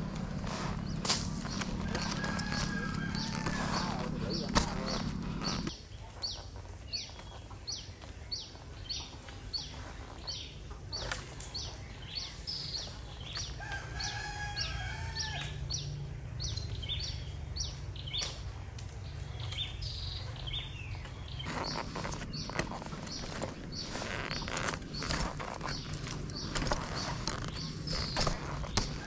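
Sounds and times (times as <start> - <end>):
low rumble: 0.0 - 5.7
bird chirping: 0.0 - 29.0
rooster crowing: 1.8 - 4.4, 13.6 - 15.8.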